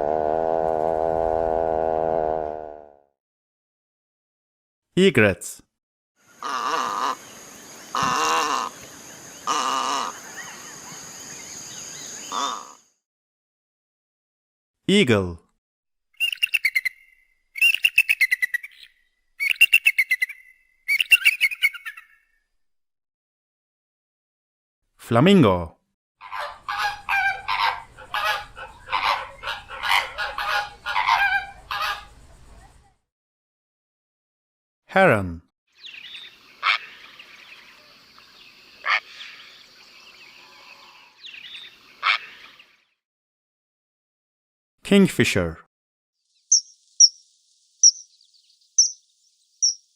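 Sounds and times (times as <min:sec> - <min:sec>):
small birds chirping: 0:06.3 - 0:12.8, 0:16.2 - 0:22.4, 0:35.8 - 0:42.9, 0:46.2 - 0:49.9
heron calling: 0:07.9 - 0:08.8, 0:09.4 - 0:10.7, 0:46.5 - 0:47.2, 0:47.8 - 0:48.2, 0:48.8 - 0:49.9
eagle chattering call: 0:47.8 - 0:48.1, 0:49.6 - 0:49.9.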